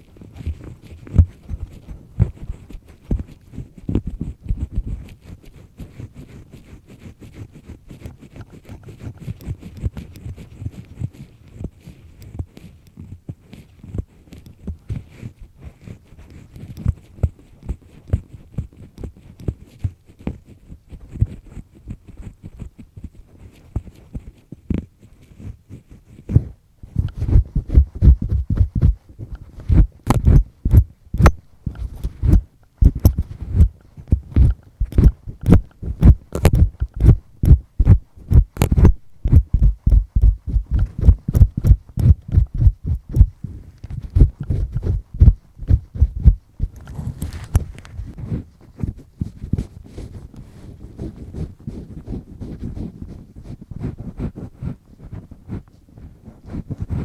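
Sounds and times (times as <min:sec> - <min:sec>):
earpick scraping in ear: 0:25.0 - 0:57.0.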